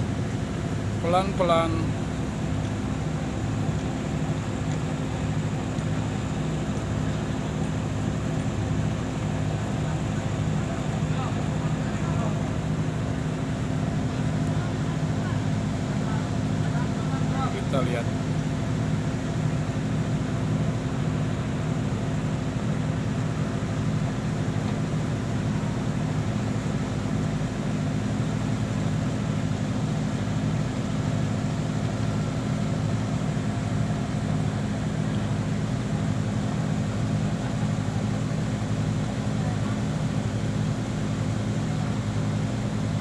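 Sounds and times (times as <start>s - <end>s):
boat engine droning: 0.0s - 43.0s.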